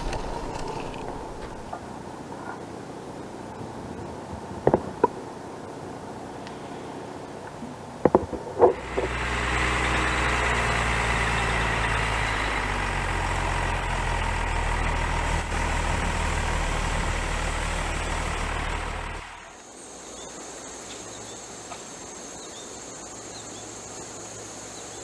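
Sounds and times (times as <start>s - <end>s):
engine idling hum: 0.0s - 2.0s, 8.7s - 19.6s.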